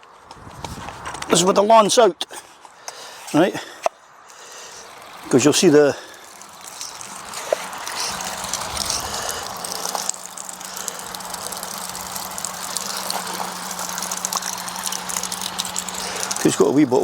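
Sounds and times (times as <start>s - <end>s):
water rushing through pressure washer: 3.1s - 17.0s
pump low hum: 3.6s - 17.0s.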